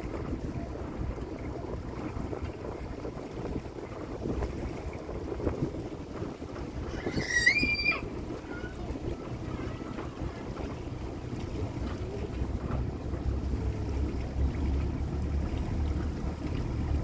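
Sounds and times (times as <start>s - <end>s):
boat engine rumble: 0.0s - 17.0s
wind on microphone: 0.0s - 17.0s.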